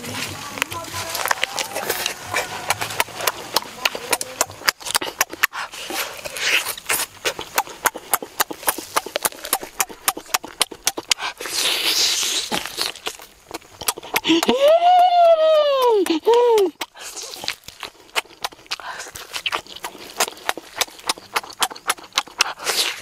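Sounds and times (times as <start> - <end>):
breathy noises: 0.0 - 23.0
person chewing and lip-smacking: 0.6 - 23.0.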